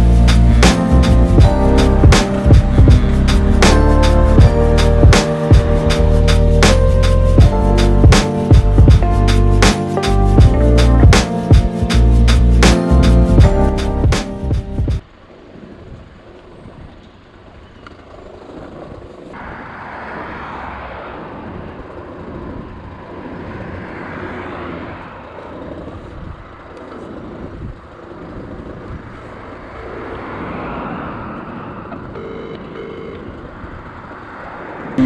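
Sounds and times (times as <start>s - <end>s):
short music: 0.0s - 15.0s.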